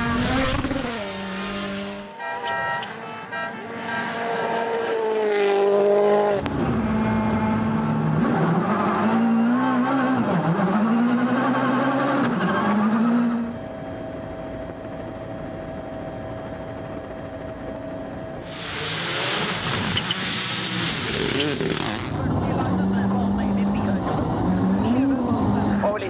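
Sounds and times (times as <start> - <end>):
car passing by: 0.0 - 6.8
car engine revving: 0.0 - 13.6, 18.4 - 26.0
engine hum: 0.0 - 26.0.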